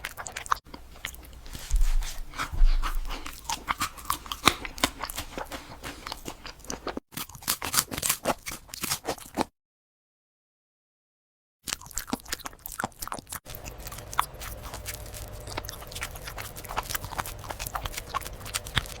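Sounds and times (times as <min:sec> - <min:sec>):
animal chewing and crunching food: 0:00.0 - 0:09.5, 0:11.7 - 0:19.0
low steady hum: 0:13.5 - 0:19.0.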